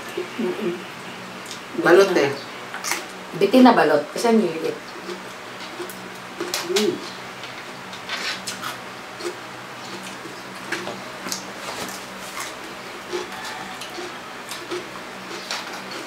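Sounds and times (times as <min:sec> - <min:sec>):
chewing and lip smacks: 0:07.9 - 0:16.0
cucumber crunching: 0:07.9 - 0:16.0.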